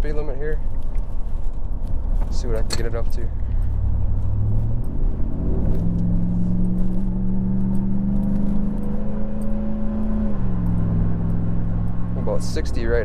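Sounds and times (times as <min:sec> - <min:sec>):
truck engine accelerating: 0:02.4 - 0:13.0.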